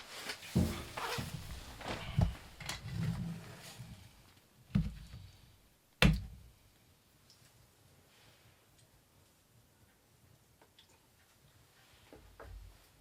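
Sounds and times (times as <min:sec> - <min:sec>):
rustling handling noises: 0:00.0 - 0:04.0.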